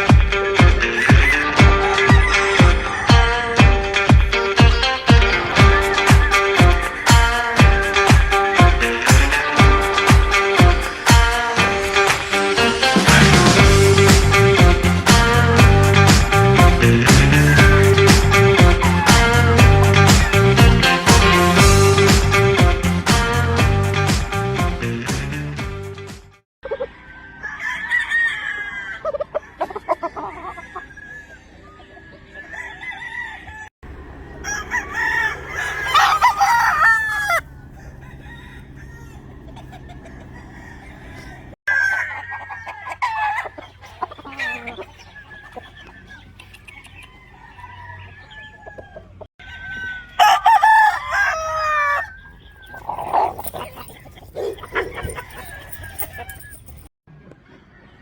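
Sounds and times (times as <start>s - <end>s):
chickens clucking: 0.0s - 22.2s, 26.6s - 27.2s, 28.5s - 33.0s, 33.9s - 58.0s
roosters crowing: 0.0s - 22.5s, 26.8s - 56.9s.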